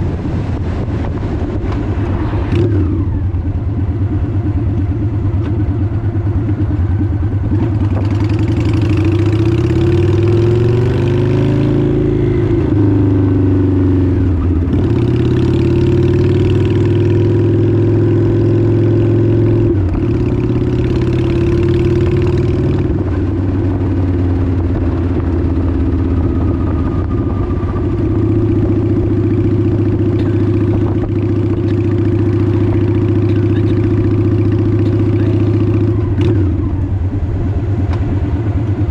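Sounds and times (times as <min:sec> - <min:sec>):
wind on microphone: 0:00.0 - 0:04.0, 0:24.7 - 0:33.1
motorcycle engine running: 0:00.0 - 0:38.9.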